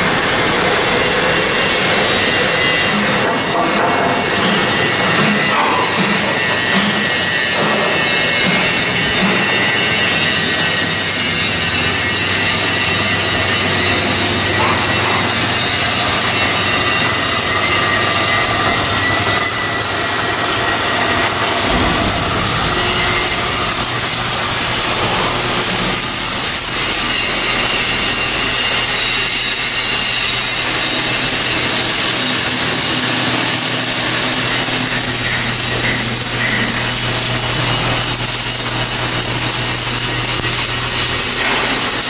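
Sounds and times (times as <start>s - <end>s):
machinery low hum: 17.1s - 26.9s.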